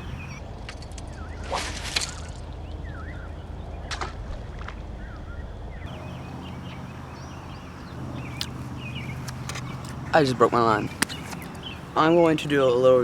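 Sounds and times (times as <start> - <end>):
small birds chirping: 0.0 - 0.4, 5.9 - 13.0
sharp clicks: 8.2 - 10.0, 10.8 - 11.8.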